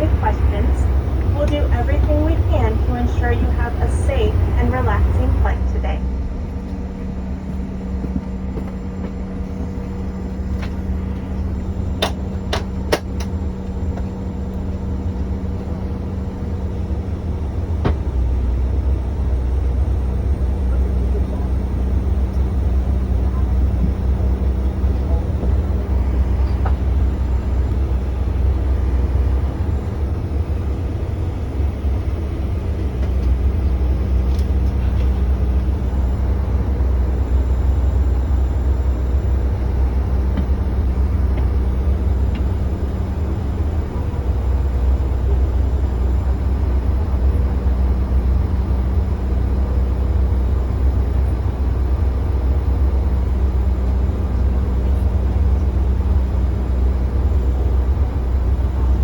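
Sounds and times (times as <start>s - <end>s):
aircraft cabin rumble: 0.0s - 59.0s
constant hum: 0.0s - 59.0s.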